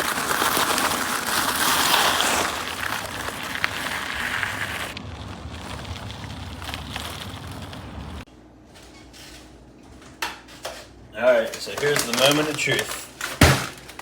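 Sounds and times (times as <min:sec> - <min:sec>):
bicycle tyres on gravel: 0:00.0 - 0:09.6, 0:11.2 - 0:14.0
wind on microphone: 0:03.9 - 0:08.2.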